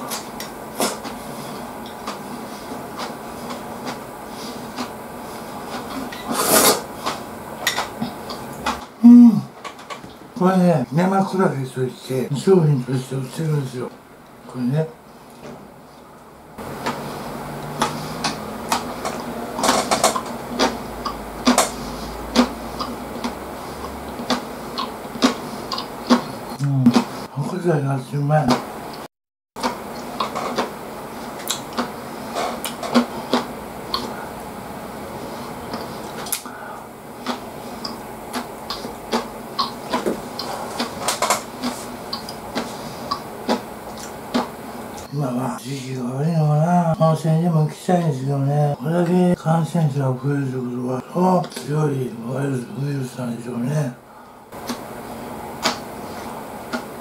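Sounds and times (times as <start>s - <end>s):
wet chewing: 17.6s - 27.2s, 29.6s - 34.2s, 37.1s - 45.1s.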